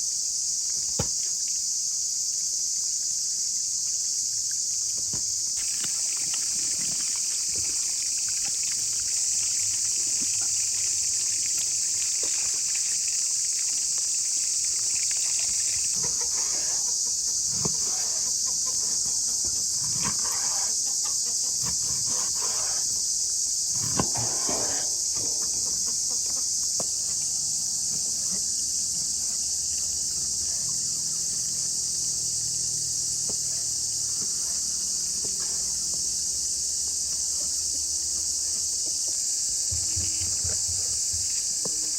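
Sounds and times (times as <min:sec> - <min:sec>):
insect chorus buzzing: 0:00.0 - 0:41.9
handling knocks and rustles: 0:15.0 - 0:27.2.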